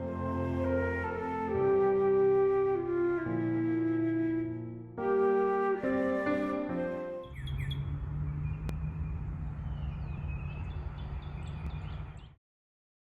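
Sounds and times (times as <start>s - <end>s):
wild birds chirping: 7.2s - 12.4s.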